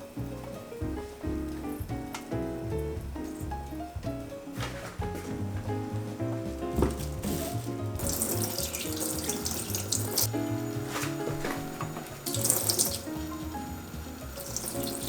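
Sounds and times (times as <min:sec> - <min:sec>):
background music: 0:00.0 - 0:15.0
water running from tap into sink: 0:06.7 - 0:15.0.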